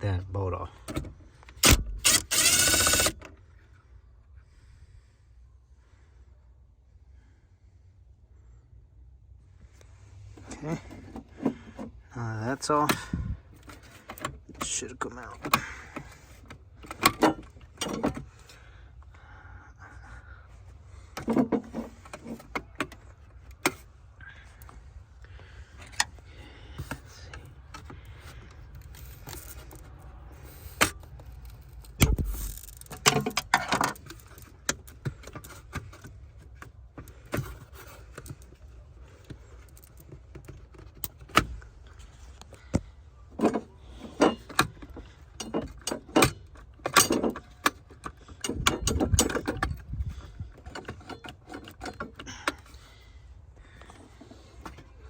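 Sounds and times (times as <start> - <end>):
rattling handling: 0.8 - 3.4, 12.6 - 18.7, 21.0 - 55.0
tools and parts clinking: 0.8 - 3.4, 12.8 - 18.3, 26.8 - 55.0.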